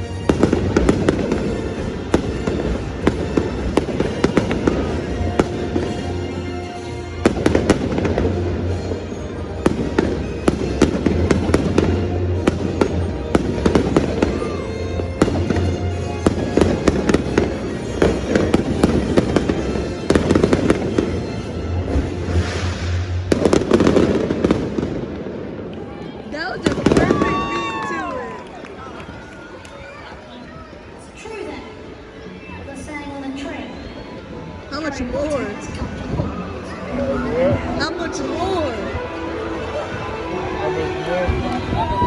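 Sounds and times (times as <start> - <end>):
fireworks bangs and crackles: 0.0 - 30.0
music playing: 0.0 - 42.0.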